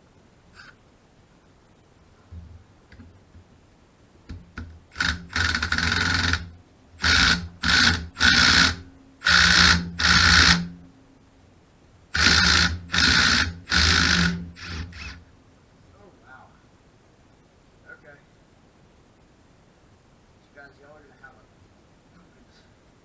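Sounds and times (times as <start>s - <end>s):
power drill bursts: 4.9s - 10.8s, 12.1s - 15.2s.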